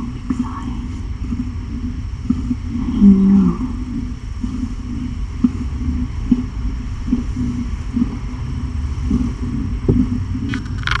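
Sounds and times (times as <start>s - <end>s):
cat purring: 0.0s - 1.8s.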